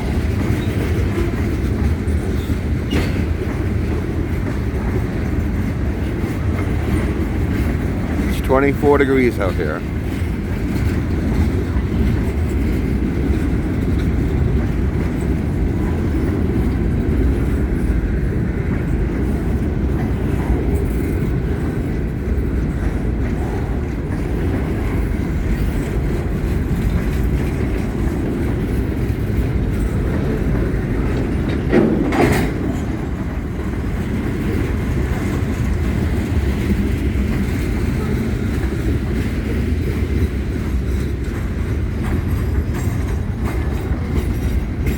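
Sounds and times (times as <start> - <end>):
freight train rumbling past: 0.0 - 44.9.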